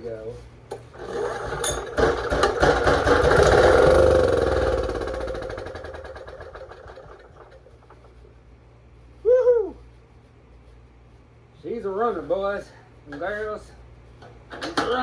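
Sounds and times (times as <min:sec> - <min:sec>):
generator engine firing unevenly: 0:00.7 - 0:08.2.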